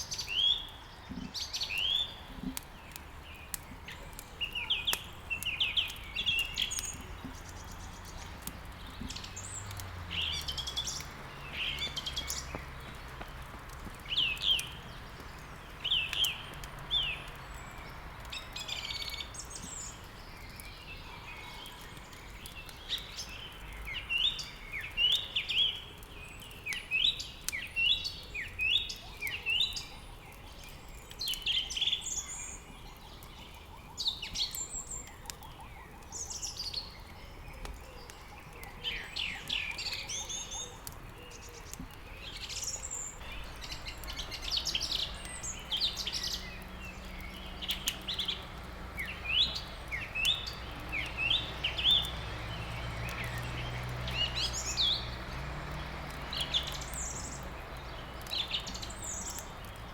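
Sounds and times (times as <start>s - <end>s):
songbirds chirping and singing: 0.0s - 59.9s
wood crackling in a fireplace: 0.0s - 59.9s.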